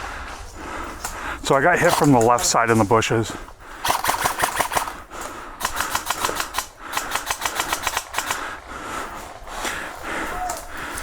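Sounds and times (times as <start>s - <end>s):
airsoft gun full-auto bursts: 1.8s - 2.5s, 3.8s - 8.6s.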